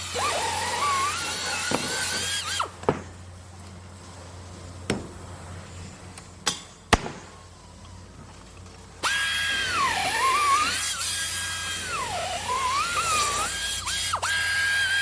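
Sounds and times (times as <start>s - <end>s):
power drill whining: 0.0s - 2.7s, 9.0s - 15.0s.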